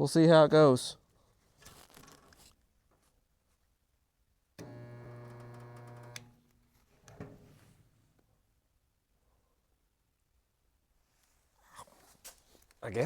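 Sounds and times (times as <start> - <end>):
welder click: 4.6 - 6.3
spot welder electric buzz: 4.6 - 6.4.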